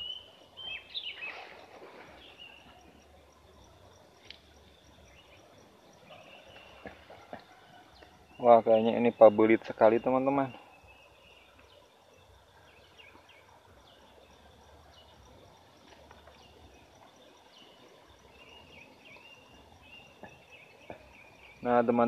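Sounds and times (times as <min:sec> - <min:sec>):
faint bird chirps and whistles: 0:00.0 - 0:03.4.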